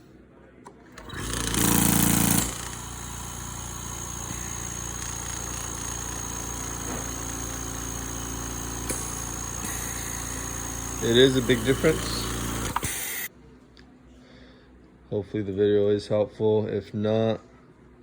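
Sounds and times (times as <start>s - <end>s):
oxygen concentrator humming: 0.8s - 13.3s.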